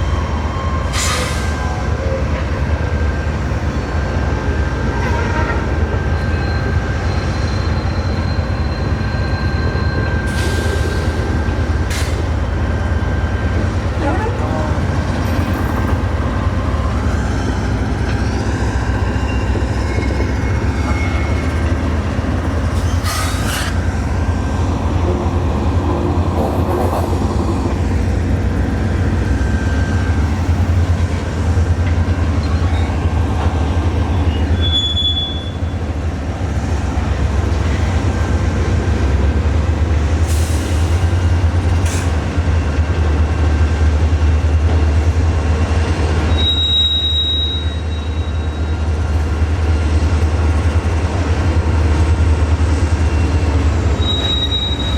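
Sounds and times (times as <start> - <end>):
train wheels rumbling on rail: 0.0 - 54.9
wheel squeals and clicks: 53.0 - 54.9.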